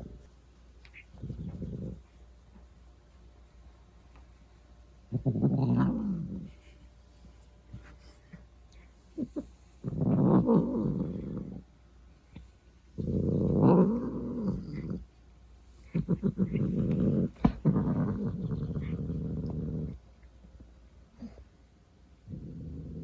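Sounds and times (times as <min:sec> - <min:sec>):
cat growling: 0:00.9 - 0:02.1, 0:05.1 - 0:06.6, 0:09.2 - 0:11.7, 0:13.0 - 0:15.1, 0:15.8 - 0:20.0, 0:22.2 - 0:23.0.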